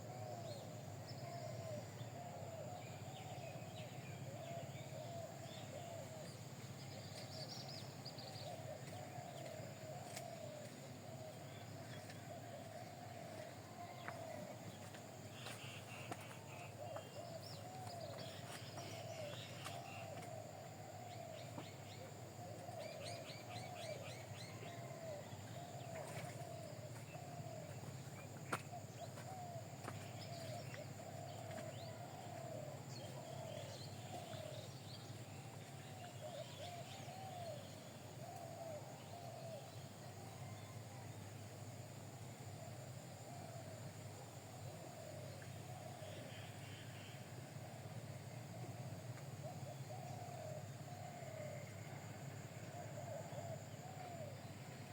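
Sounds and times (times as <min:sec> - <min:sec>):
birds calling and chirping: 0:00.4 - 0:40.5.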